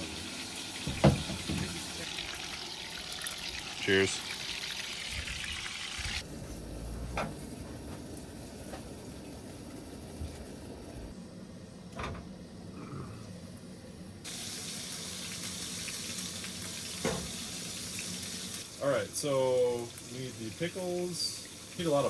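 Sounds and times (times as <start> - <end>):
patties sizzling in a pan: 0.0 - 6.2, 14.2 - 22.0.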